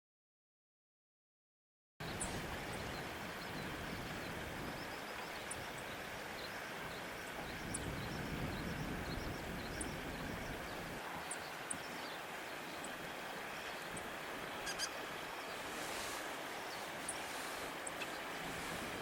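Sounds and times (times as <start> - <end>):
steady background hiss and rumble: 2.0 - 19.0
high bird chirps: 14.6 - 15.6.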